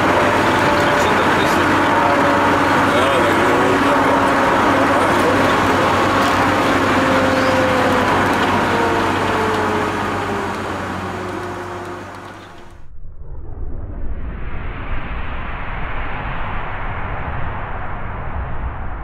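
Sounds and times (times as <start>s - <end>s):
car engine at speed: 0.0s - 12.9s
road noise: 0.0s - 12.9s.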